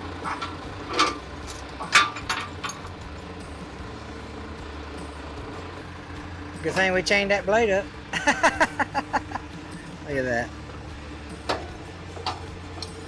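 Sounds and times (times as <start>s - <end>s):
sharp metal clanks: 0.0s - 3.8s
heavy machinery engine idling: 0.0s - 13.0s.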